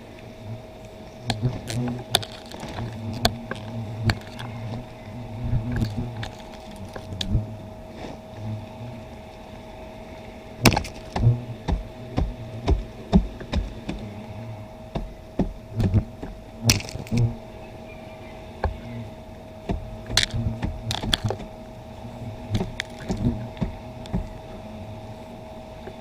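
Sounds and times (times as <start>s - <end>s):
faint steady whine: 0.0s - 26.0s
low hum: 0.0s - 26.0s
sharp knocks and cracks: 1.3s - 4.8s, 10.6s - 14.1s, 14.9s - 17.3s, 19.6s - 21.5s, 22.5s - 24.4s.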